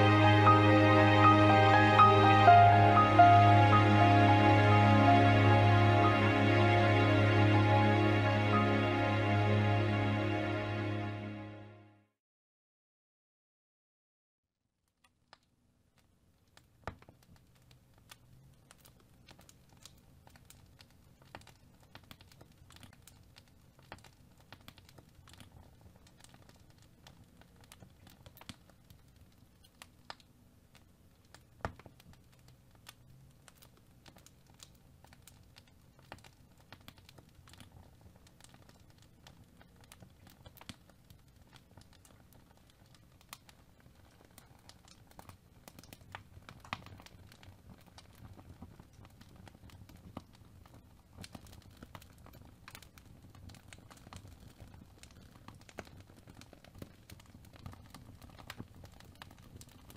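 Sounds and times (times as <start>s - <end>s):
low steady hum: 0.0s - 11.6s
small clicks and crackles: 14.8s - 59.9s.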